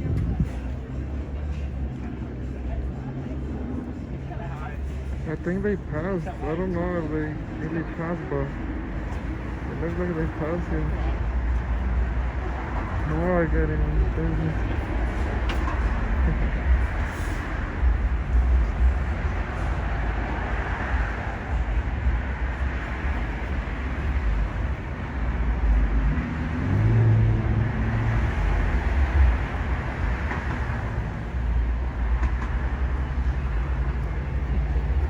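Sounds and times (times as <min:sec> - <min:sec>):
street traffic rumble: 0:00.0 - 0:35.0
vehicle engine hum: 0:00.0 - 0:35.0.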